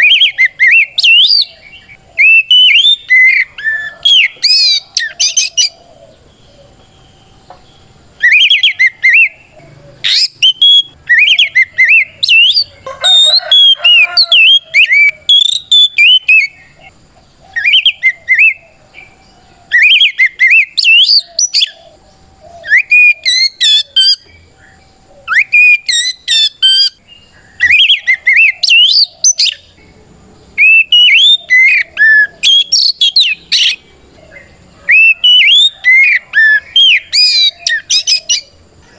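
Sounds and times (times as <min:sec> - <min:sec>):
bird singing whistled song: 0:00.0 - 0:16.9, 0:17.5 - 0:38.6
bird chattering: 0:08.2 - 0:38.9.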